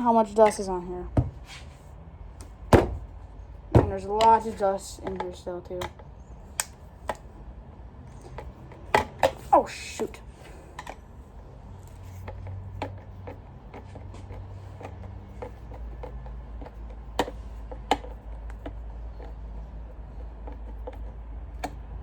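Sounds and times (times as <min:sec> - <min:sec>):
screwdriver clicks and taps: 0:12.2 - 0:19.3, 0:20.2 - 0:21.9.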